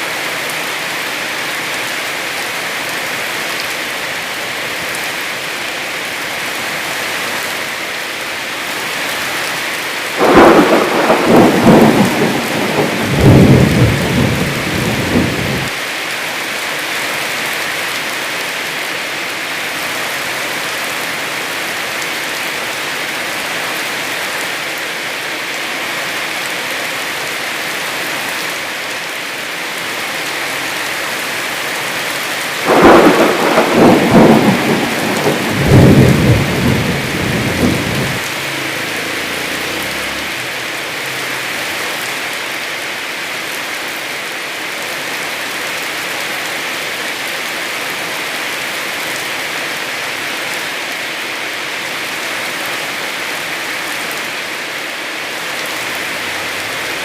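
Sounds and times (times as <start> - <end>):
heavy rain: 0.0 - 57.0
thunder rumbling: 10.2 - 15.7, 32.6 - 40.5.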